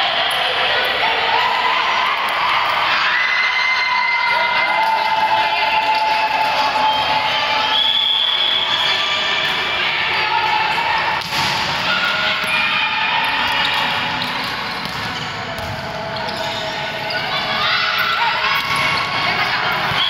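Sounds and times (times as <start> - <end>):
mix of voices: 0.0 - 20.0
ball bouncing on indoor court: 10.2 - 20.0.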